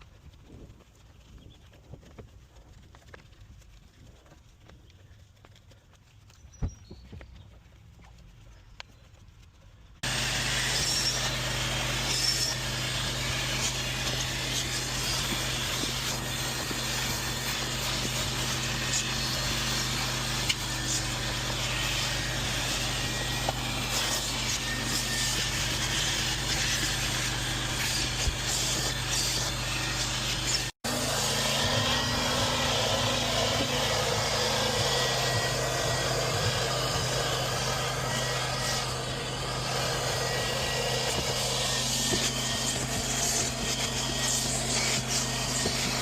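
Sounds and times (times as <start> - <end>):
machine humming and hissing: 10.0 - 46.0.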